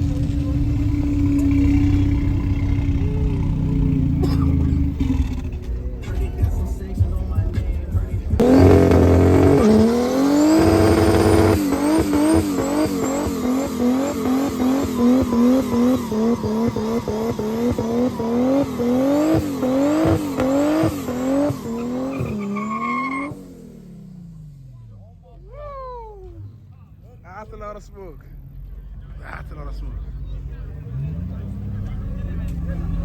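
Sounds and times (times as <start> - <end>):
tyres squealing: 0.0 - 23.4
engine revving: 0.0 - 33.0.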